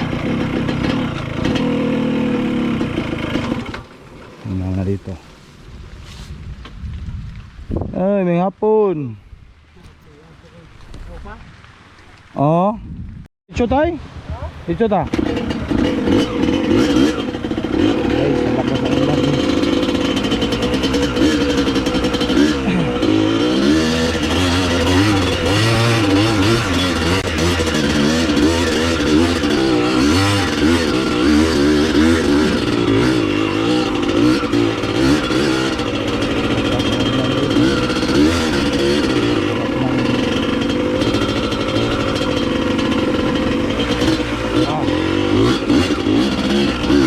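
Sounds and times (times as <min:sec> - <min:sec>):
dirt bike engine revving: 0:00.0 - 0:05.5, 0:14.9 - 0:47.0.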